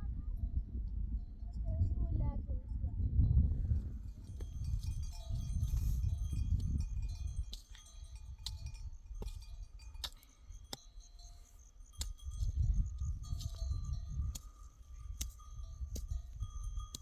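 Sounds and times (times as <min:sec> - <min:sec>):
wind buffeting microphone: 0:00.0 - 0:17.0
livestock bells clinking: 0:03.5 - 0:17.0.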